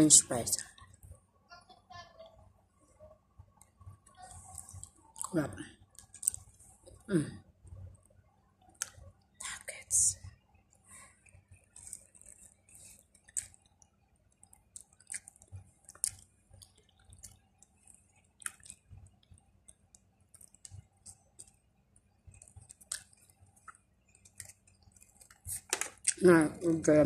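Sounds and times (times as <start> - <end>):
person chewing crunchy food: 6.0 - 6.5, 14.5 - 19.4, 20.3 - 21.6, 22.3 - 26.2.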